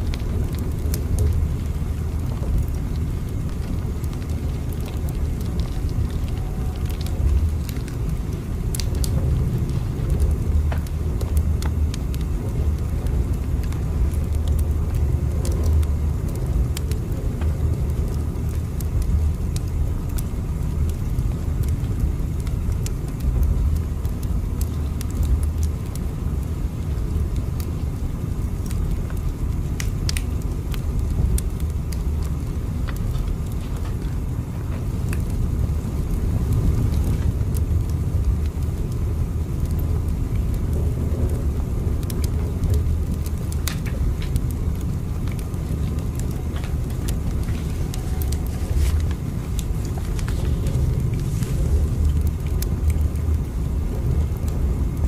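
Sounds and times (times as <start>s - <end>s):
faint clicks and ticks: 0.0s - 55.0s
train rumbling: 46.1s - 53.1s.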